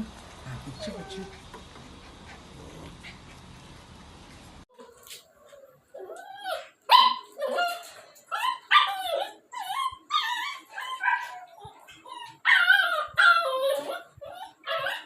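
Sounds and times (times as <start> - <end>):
puppy barking in high-pitched yips: 6.9 - 7.8.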